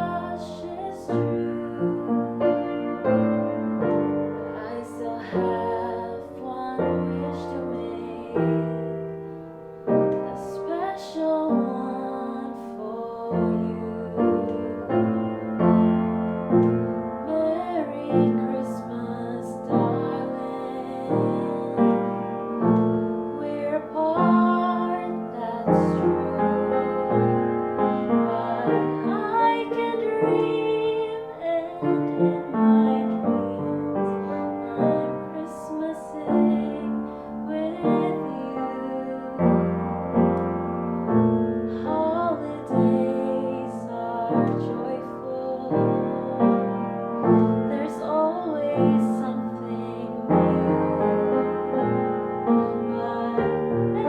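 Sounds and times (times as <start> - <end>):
woman singing with vibrato: 0.0 - 9.2, 9.9 - 15.0, 17.2 - 39.8, 41.7 - 54.0
piano playing slow chords: 0.0 - 54.0.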